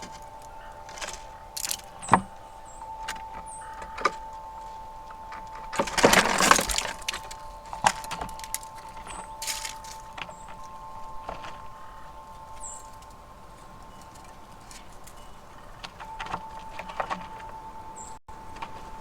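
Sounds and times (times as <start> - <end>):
high bird chirps: 0.0 - 5.8, 6.6 - 15.6
rustling crunch: 0.0 - 17.6
sharp clinks: 0.0 - 18.2
wind chimes ringing: 0.0 - 19.0.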